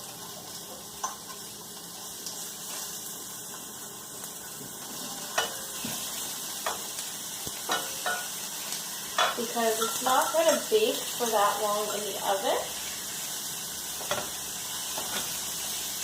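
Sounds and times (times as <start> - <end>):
chicken sizzling in a skillet: 0.0 - 16.0.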